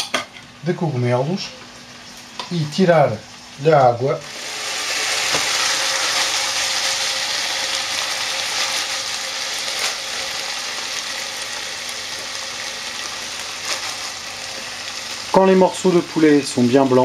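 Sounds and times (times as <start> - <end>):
chicken sizzling in a pan: 1.7 - 17.0
crackles from shaken pan: 4.6 - 17.0.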